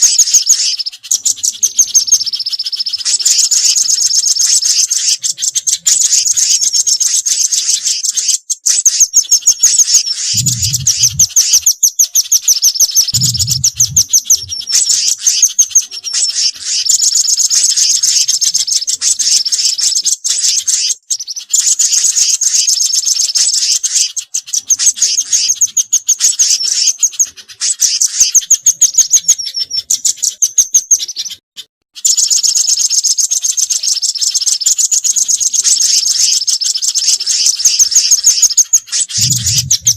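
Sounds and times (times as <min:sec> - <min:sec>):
high chirping bird trills: 0:00.0 - 0:31.4, 0:32.0 - 0:39.9
low thuds: 0:13.2 - 0:14.6.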